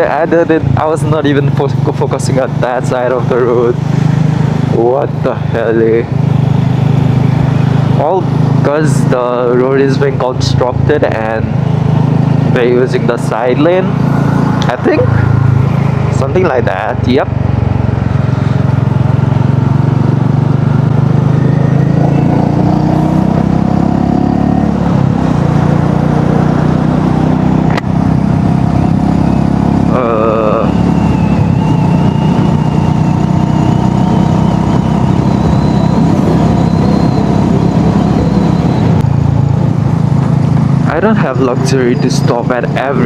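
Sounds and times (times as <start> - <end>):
motorcycle engine running: 0.0 - 43.0
brief warbling tone: 21.3 - 23.4.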